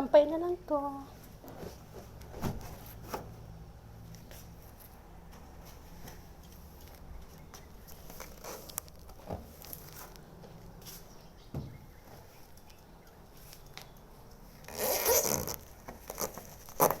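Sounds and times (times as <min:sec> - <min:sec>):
laundry clicks and rustles: 0:01.1 - 0:03.4.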